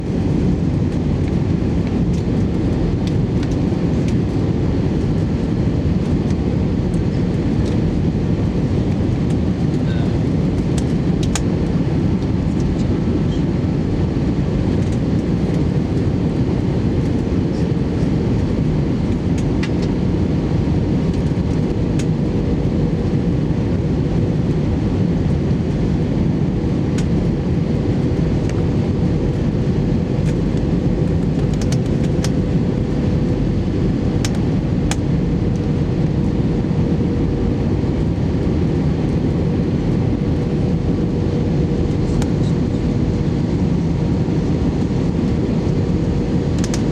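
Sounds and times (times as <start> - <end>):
aircraft engines roaring: 0.0 - 46.9.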